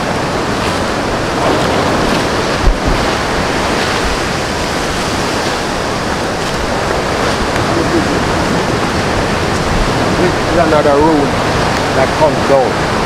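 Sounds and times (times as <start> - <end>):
low thump: 2.6 - 3.1.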